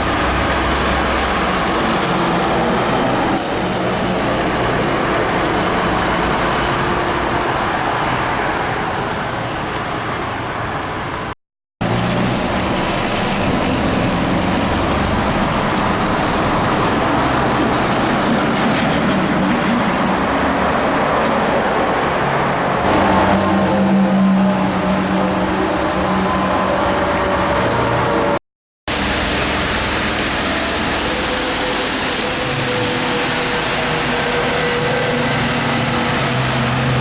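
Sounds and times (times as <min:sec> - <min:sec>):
traffic engine drone: 0:00.0 - 0:37.0
trucks going by: 0:00.0 - 0:37.0.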